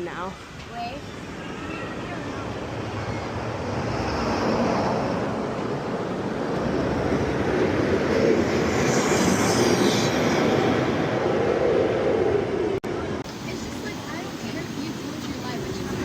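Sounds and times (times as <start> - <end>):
roller coaster rumbling on track: 0.0 - 16.0
rising hiss: 13.3 - 16.0.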